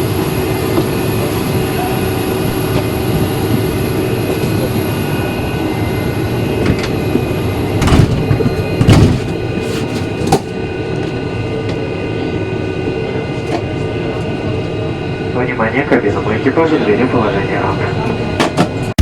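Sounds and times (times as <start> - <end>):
cabin air system hum: 0.0 - 19.0
metal door mechanism clunks: 7.8 - 9.4.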